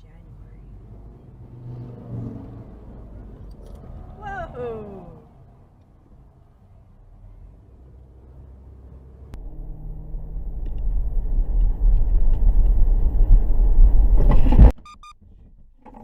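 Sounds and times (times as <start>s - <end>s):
vehicle road and engine rumble: 0.0s - 16.0s
short electronic beeps: 14.8s - 15.2s.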